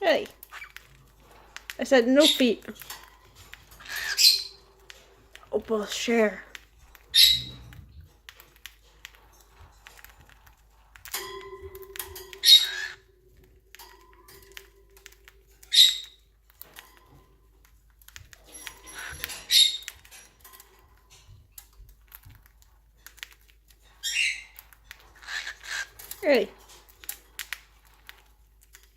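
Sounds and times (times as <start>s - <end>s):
birds squawking: 0.4s - 0.9s, 3.6s - 4.8s, 7.1s - 7.6s, 12.4s - 13.1s, 18.7s - 19.9s, 24.0s - 26.4s.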